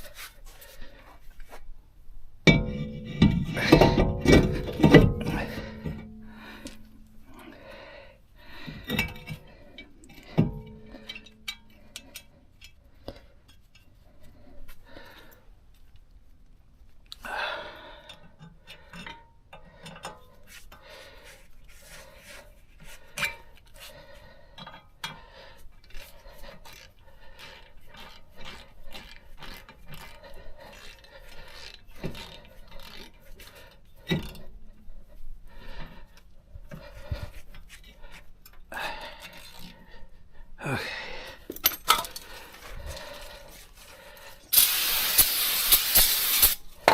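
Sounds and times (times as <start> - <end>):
hand scraping on metal: 20.4 - 24.2.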